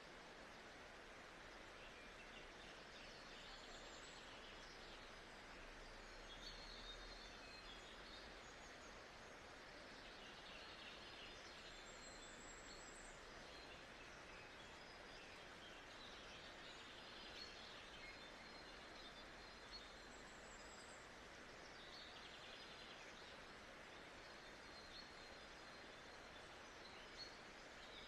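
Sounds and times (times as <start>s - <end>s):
steady hiss: 0.0s - 6.4s.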